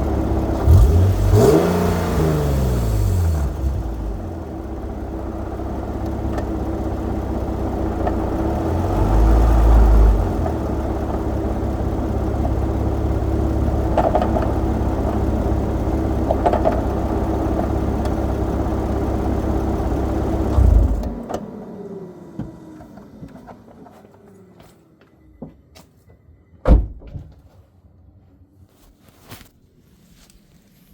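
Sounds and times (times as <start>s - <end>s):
car engine whining: 0.0s - 25.5s.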